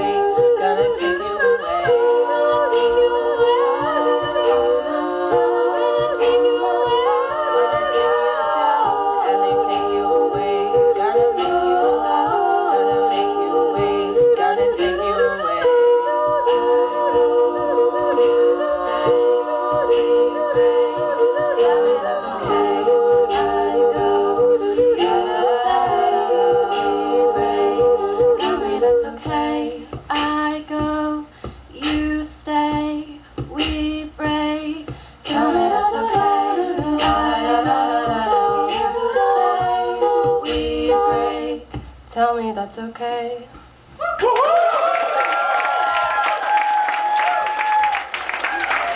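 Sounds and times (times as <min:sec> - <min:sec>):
women singing close harmony: 0:00.0 - 0:43.7.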